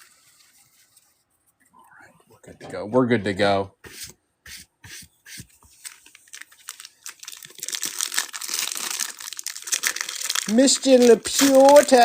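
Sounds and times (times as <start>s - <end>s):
cards rustling: 5.6s - 12.0s
foil wrapper crinkling and tearing: 5.8s - 12.0s.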